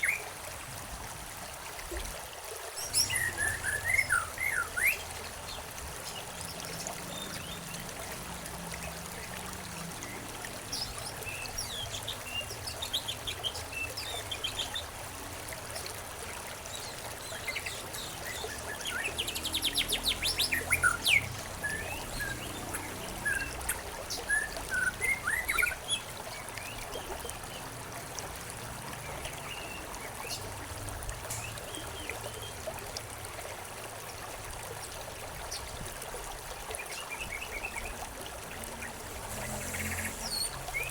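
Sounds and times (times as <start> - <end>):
trickling stream: 0.0 - 40.9
small birds chirping: 16.7 - 27.7.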